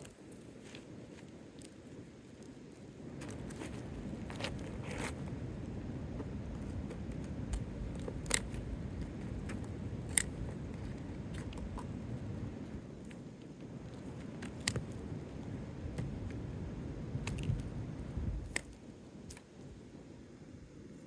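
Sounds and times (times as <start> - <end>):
shingle scraping and rustling: 3.2 - 5.4.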